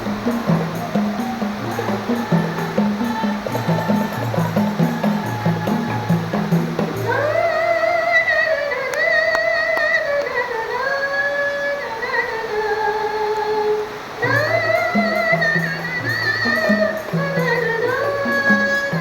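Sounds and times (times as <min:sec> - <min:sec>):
frame drums: 0:00.0 - 0:07.5, 0:14.2 - 0:19.0
person singing with vibrato: 0:00.0 - 0:19.0.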